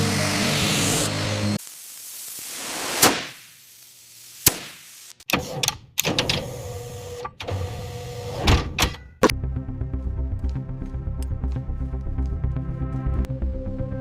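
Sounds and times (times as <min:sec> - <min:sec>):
mechanical clunks and knocks: 0:08.3 - 0:09.3.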